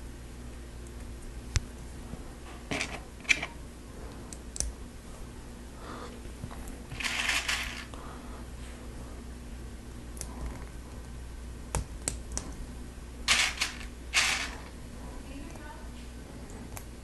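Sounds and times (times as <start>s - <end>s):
plastic pieces rustling: 6.9s - 7.9s, 13.3s - 14.7s
plastic pieces clicking: 6.9s - 8.0s, 13.3s - 14.6s.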